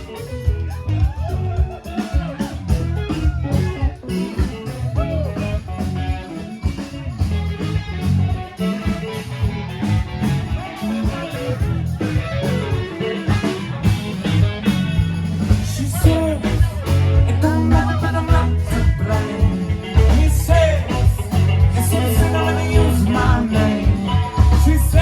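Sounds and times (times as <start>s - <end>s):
bass and drums: 0.0s - 25.0s
electric guitar: 0.0s - 25.0s.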